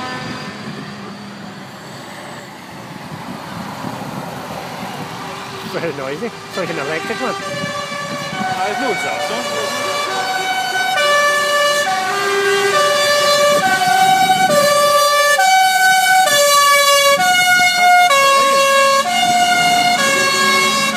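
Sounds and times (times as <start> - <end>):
truck musical horn playing a tune: 0.0 - 1.0, 6.3 - 20.9.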